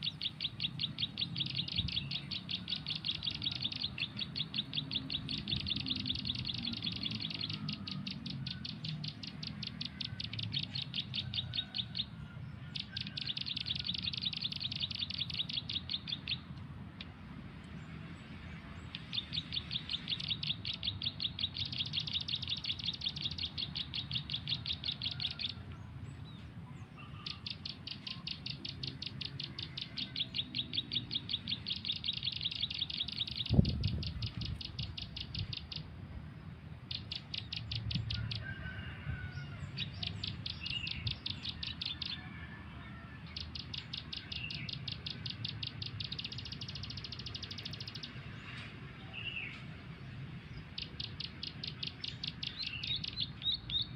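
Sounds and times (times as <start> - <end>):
high bird chirps from phone: 0.0 - 12.1, 12.7 - 16.5, 18.9 - 25.6, 27.0 - 35.9, 43.3 - 48.2
other birds calling: 0.0 - 35.9, 36.6 - 49.8, 50.4 - 53.9.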